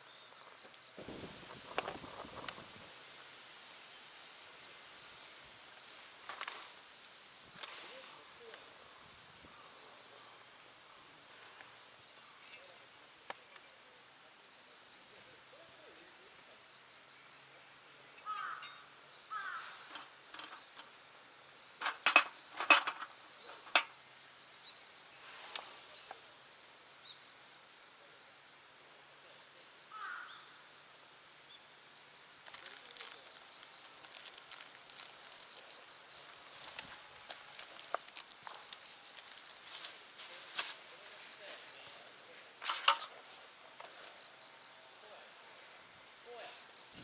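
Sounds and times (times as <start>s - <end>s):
high insect drone: 0.0s - 47.0s
small irregular crackles: 0.3s - 3.0s, 4.9s - 8.9s, 32.3s - 44.3s.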